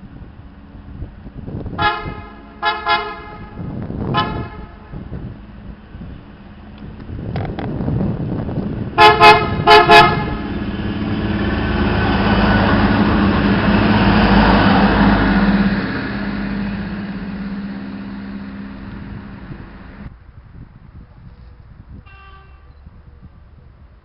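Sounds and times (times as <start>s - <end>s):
train passing: 0.0s - 20.4s
train horn blasts: 1.7s - 5.2s, 9.0s - 10.6s, 22.0s - 22.8s.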